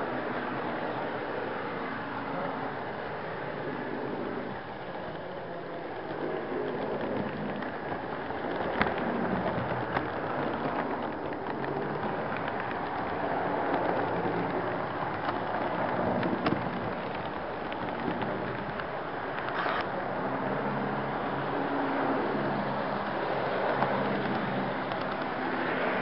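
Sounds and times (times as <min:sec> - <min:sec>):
model train wheels rattling: 0:00.0 - 0:20.0.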